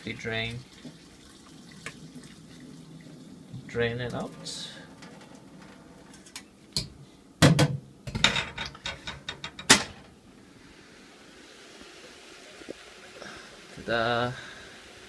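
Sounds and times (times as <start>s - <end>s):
kitchenware knocking and clattering: 7.4s - 10.1s.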